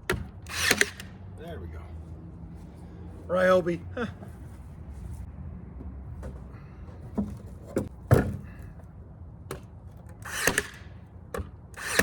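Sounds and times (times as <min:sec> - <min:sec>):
knocks against wooden fence slats: 0:07.2 - 0:08.6.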